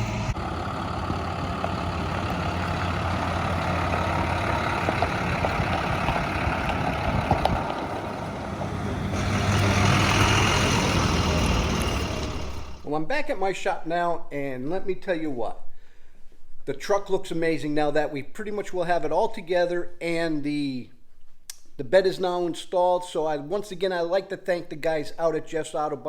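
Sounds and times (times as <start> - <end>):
road noise: 0.0 - 12.9
truck engine running: 0.0 - 12.9.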